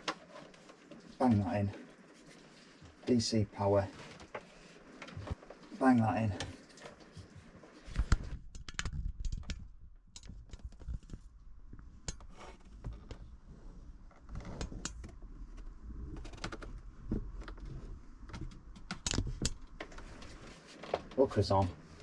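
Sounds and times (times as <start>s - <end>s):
cables and plugs clicking: 7.9s - 11.2s, 18.2s - 20.3s.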